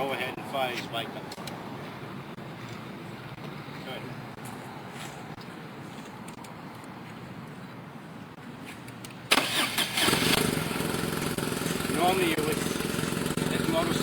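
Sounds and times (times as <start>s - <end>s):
motorcycle engine starting and idling: 9.3s - 14.0s.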